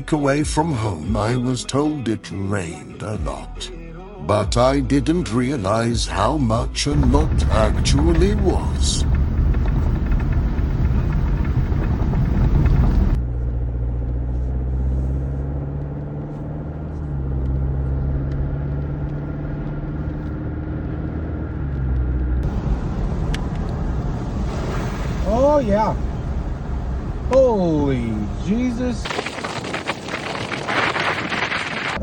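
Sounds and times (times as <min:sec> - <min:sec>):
road noise: 0:06.8 - 0:32.0
vehicle engine drone: 0:06.8 - 0:32.0
loud rushing noise: 0:06.9 - 0:13.2, 0:22.4 - 0:27.3.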